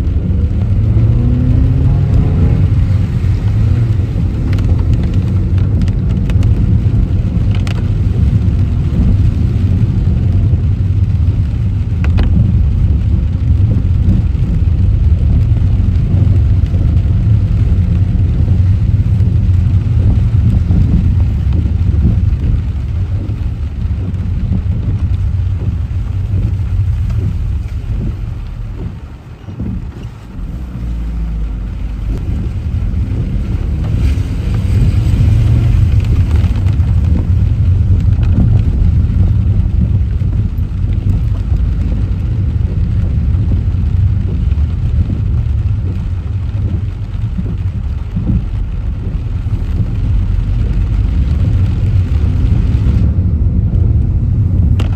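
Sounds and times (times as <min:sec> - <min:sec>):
car road and engine rumble: 0:00.0 - 0:54.9
water spray from tyres: 0:00.1 - 0:54.9.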